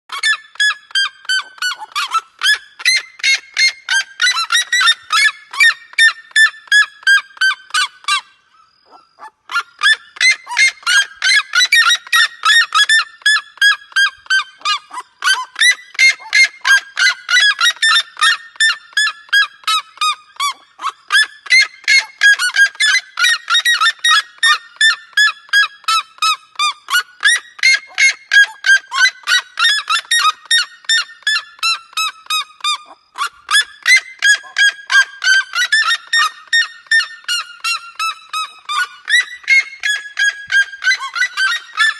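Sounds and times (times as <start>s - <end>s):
bird honking: 37.3s - 41.9s.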